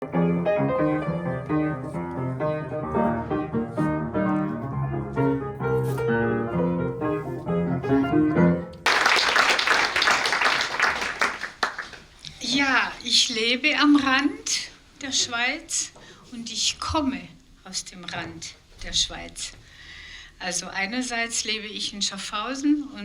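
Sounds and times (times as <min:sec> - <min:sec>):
solo piano melody: 0:00.0 - 0:08.9
audience applause: 0:08.8 - 0:12.2.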